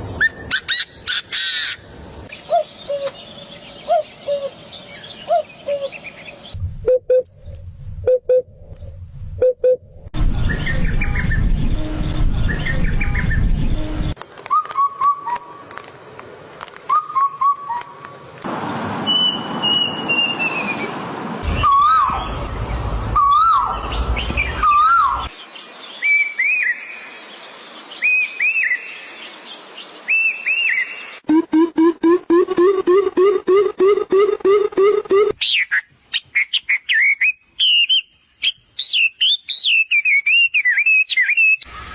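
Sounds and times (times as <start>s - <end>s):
birds whistling calls: 19.1s - 25.3s, 32.5s - 41.9s.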